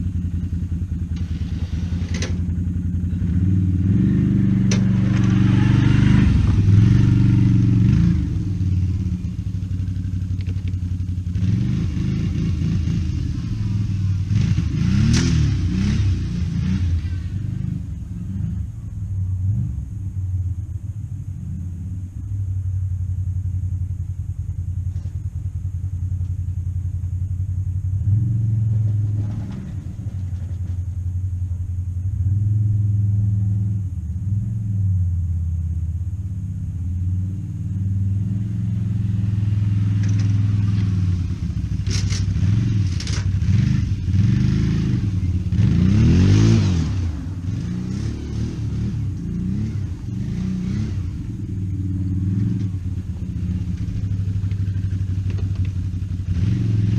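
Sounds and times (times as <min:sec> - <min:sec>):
vehicle engine revving: 0:00.0 - 0:22.4, 0:24.9 - 0:56.9
rattling noise: 0:01.0 - 0:02.8, 0:39.9 - 0:43.6.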